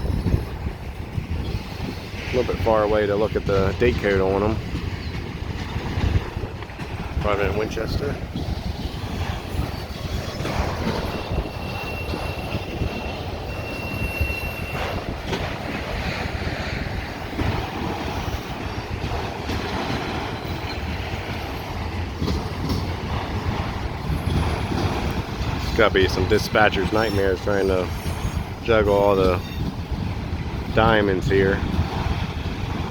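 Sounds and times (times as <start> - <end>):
freight train cars rumbling: 0.0 - 32.9
high wheel squeal: 8.4 - 15.4, 25.6 - 30.0.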